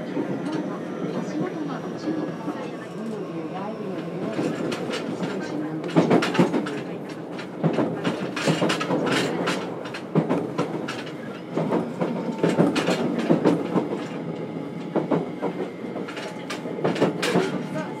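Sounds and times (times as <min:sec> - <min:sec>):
train wheels rumbling on rail: 0:00.0 - 0:18.0
wheels clacking over rail joints: 0:04.2 - 0:18.0.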